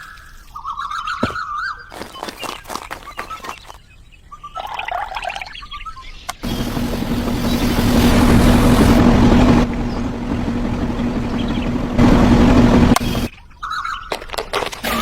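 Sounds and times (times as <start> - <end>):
loud hiss: 6.4 - 13.3
small motor humming: 6.4 - 13.3.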